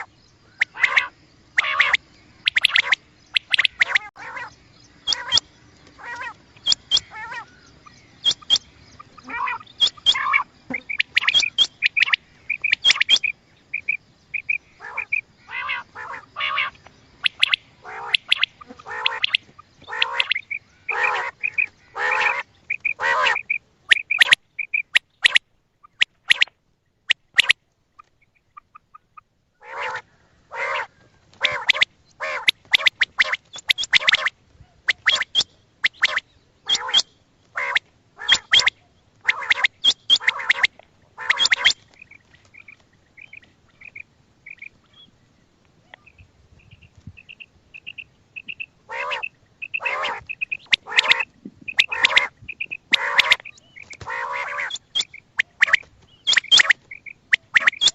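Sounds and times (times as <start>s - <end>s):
quail calling: 0.0s - 26.5s, 27.1s - 45.1s, 45.8s - 57.9s.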